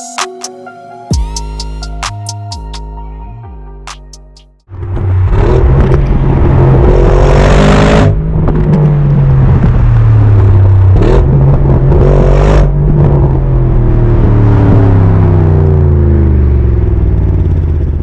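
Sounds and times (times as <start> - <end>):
car engine accelerating hard: 4.7 - 18.0.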